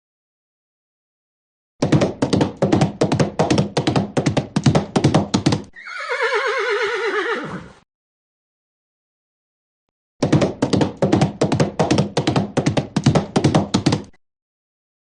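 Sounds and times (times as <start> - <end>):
horse hoofbeats: 1.8 - 6.7, 10.2 - 14.1
horse whinnying: 5.7 - 7.8.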